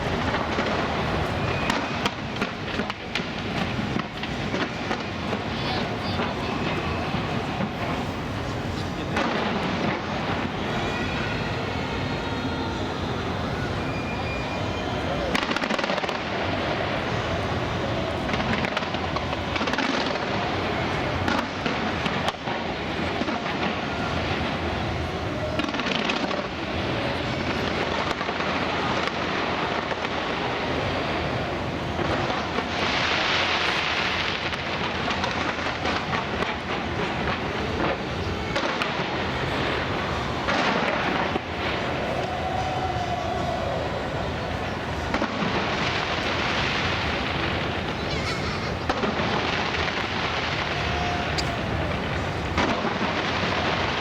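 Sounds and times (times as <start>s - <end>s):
fireworks booms and bangs: 0.0s - 54.0s
fireworks crackling: 0.0s - 54.0s.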